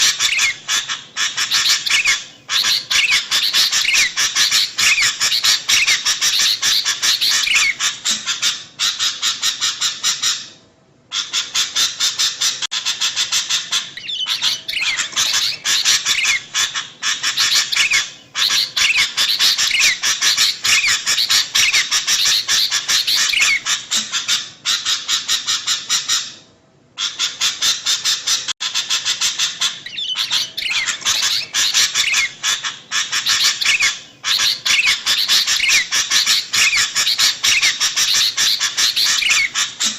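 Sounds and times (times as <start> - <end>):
birds chattering and chirping: 0.0 - 10.5, 11.1 - 39.9.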